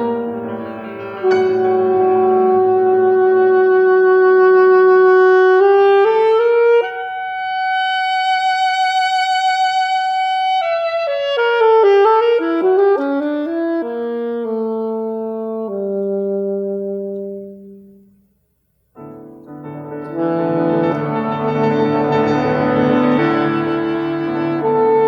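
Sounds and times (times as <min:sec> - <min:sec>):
violin playing: 0:00.0 - 0:05.2
piano chords: 0:00.0 - 0:07.8, 0:19.0 - 0:25.0.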